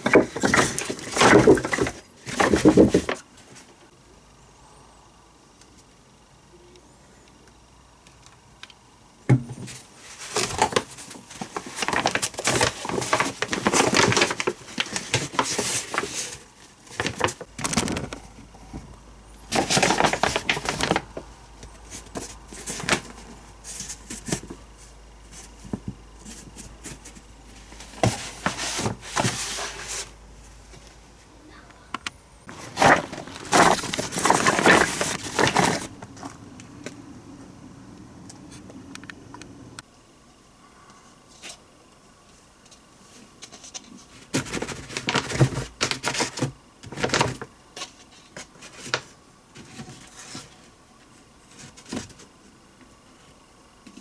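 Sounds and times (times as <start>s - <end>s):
rustling: 9.6s - 36.6s.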